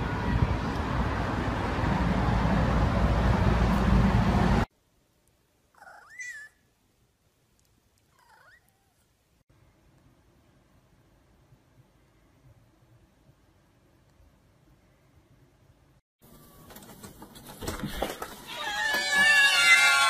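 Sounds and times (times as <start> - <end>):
loud noisy rumble and hiss: 0.0 - 4.7
cat meowing: 5.8 - 6.6, 8.2 - 9.0, 18.5 - 20.0.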